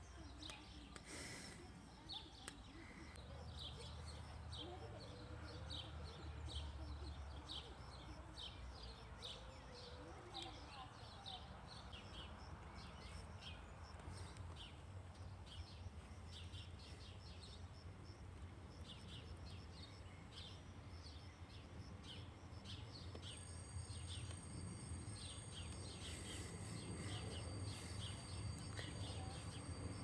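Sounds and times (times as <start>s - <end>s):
small birds chirping: 0.0s - 30.0s
thin high tone: 23.0s - 30.0s.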